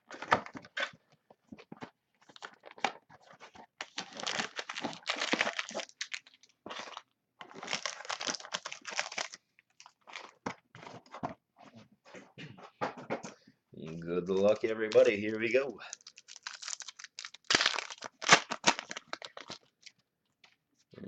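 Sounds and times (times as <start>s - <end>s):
plastic wrap crinkling and tearing: 2.3s - 10.7s, 13.9s - 20.0s.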